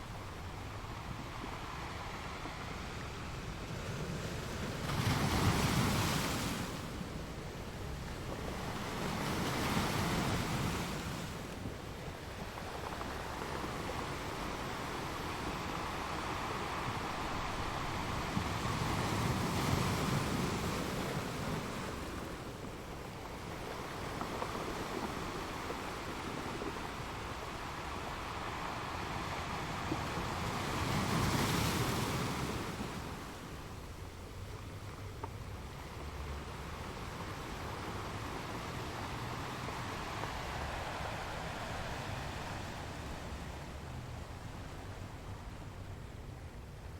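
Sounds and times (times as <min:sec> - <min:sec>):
ocean waves breaking on shore: 0:00.0 - 0:46.9.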